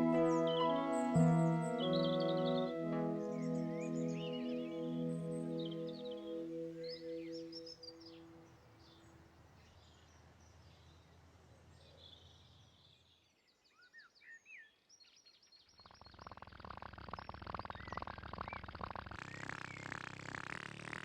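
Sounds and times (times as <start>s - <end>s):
held music notes: 0.0s - 7.8s
faint birdsong chirps: 0.0s - 11.1s.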